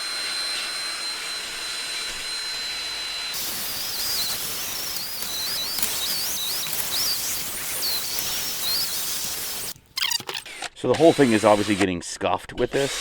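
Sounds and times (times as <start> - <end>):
abrasive hissing on steel: 3.4 - 10.4
power drill whining: 3.4 - 11.9.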